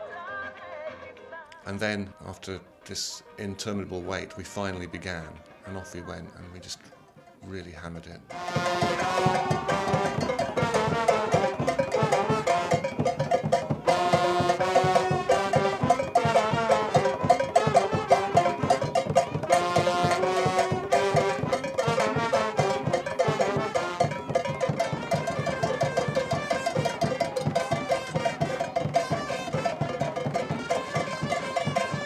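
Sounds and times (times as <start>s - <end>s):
carnival drums and bells: 3.8s - 32.0s
trombones playing melody: 8.3s - 32.0s.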